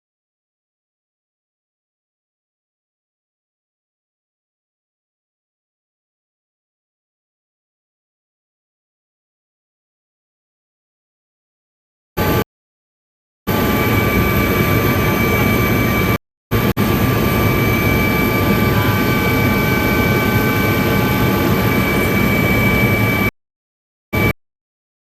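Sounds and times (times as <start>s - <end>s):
helicopter turbine and rotor whine: 12.2s - 12.4s, 13.5s - 23.3s, 24.2s - 24.4s.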